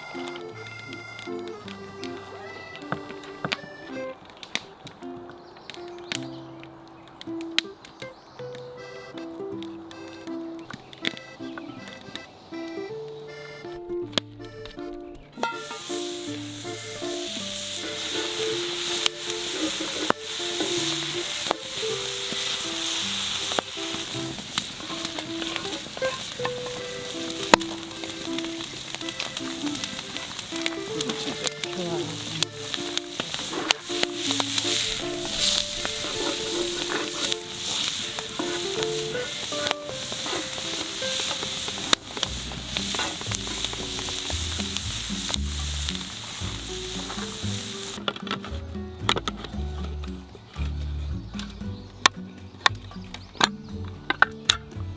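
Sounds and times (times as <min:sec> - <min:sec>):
soft background music: 0:00.0 - 0:54.9
food sizzling in a pan: 0:15.4 - 0:48.0
sharp clicks: 0:16.3 - 0:48.4.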